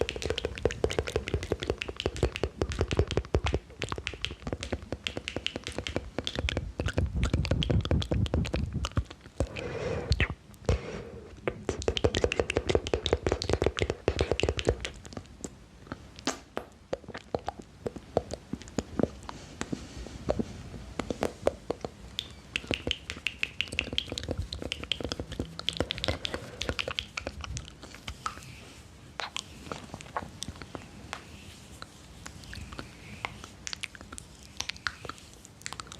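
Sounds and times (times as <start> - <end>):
wet mouth clicks and smacks: 0.0 - 10.6, 11.4 - 19.7, 20.3 - 35.9
breathy hisses: 9.4 - 11.4, 25.4 - 27.2.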